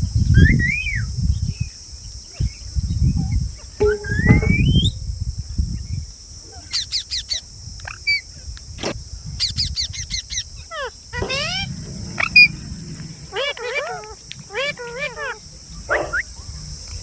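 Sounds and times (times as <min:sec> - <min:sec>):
shrill chirps: 0:03.8 - 0:05.0, 0:10.8 - 0:16.4
parrots calling: 0:10.3 - 0:16.9
low rumble: 0:11.2 - 0:17.0.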